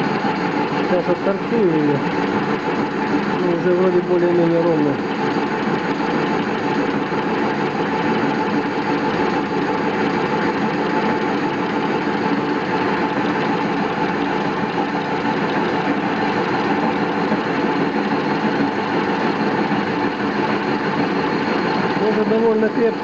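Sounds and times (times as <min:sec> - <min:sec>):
metal lathe cutting steel: 0:00.0 - 0:23.0.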